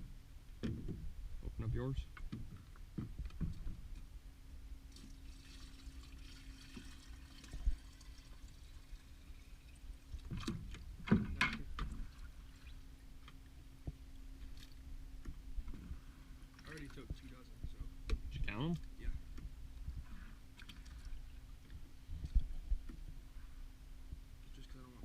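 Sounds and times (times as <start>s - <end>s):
faint steady hum: 0.0s - 25.0s
water sloshing and splashing: 4.8s - 17.6s, 18.6s - 23.7s.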